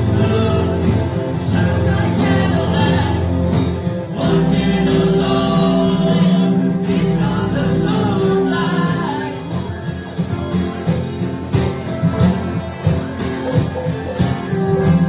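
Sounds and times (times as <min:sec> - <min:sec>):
group of people singing: 0:00.0 - 0:10.5
acoustic guitar: 0:00.0 - 0:15.0.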